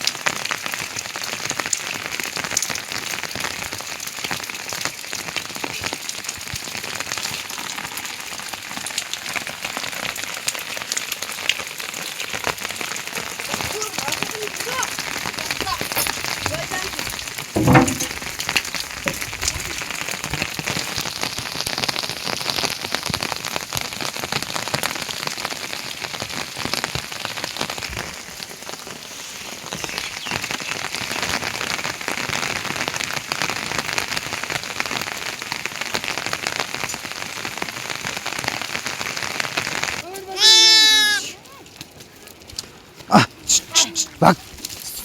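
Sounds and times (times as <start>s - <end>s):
heavy rain falling: 0.0s - 45.0s.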